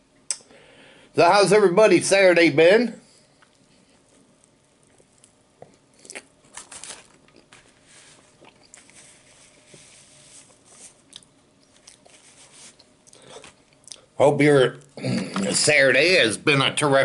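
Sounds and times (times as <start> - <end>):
person chewing food: 3.4 - 9.8, 10.4 - 14.1
paper wrapper crinkling: 6.4 - 11.0.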